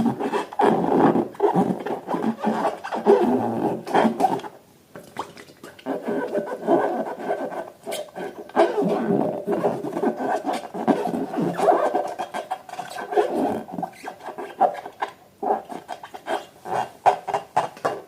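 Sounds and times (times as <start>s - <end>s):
balloons and slime squeaking: 5.8s - 16.5s.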